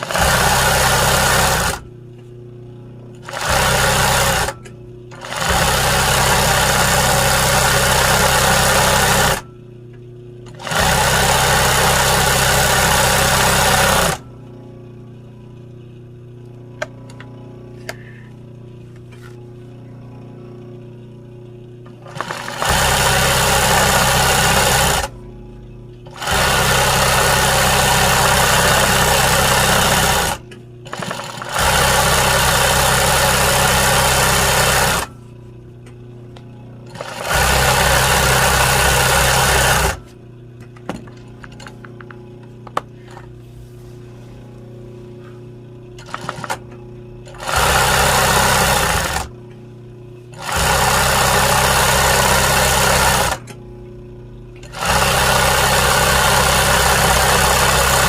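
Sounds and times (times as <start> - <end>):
sewing machine stitching: 0.0 - 1.8, 3.2 - 9.5, 10.5 - 14.2, 22.0 - 25.1, 26.0 - 35.1, 36.9 - 40.1, 46.0 - 46.6, 47.2 - 49.3, 50.3 - 53.5, 54.6 - 58.0.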